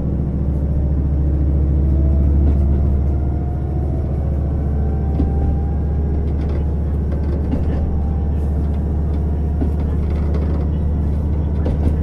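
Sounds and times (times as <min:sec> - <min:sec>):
diesel railcar engine rumble: 0:00.0 - 0:12.0.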